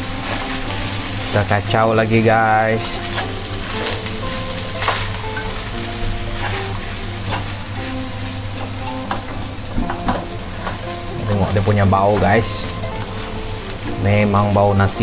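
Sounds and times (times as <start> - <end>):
spatula scraping a pan: 0.0 - 9.4
rice sizzling in a wok: 0.0 - 15.0.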